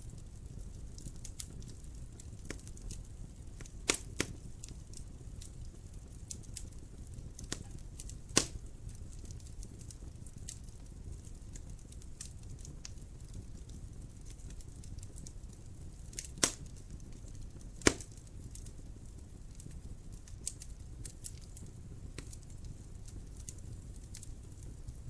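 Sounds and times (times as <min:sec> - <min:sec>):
fire crackling: 0:00.0 - 0:25.0
wood fire rumbling: 0:00.0 - 0:25.0
sharp pops: 0:08.4 - 0:08.6, 0:17.8 - 0:18.1.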